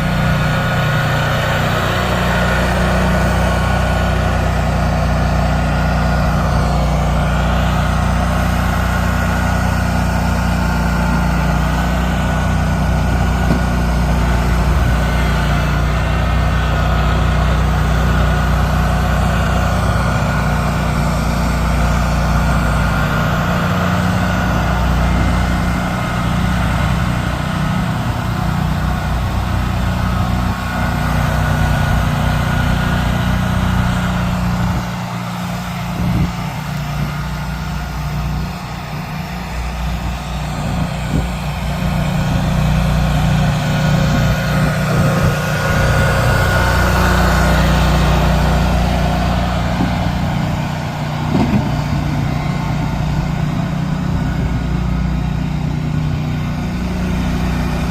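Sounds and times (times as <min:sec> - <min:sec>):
plow vehicle engine running: 0:00.0 - 0:57.9.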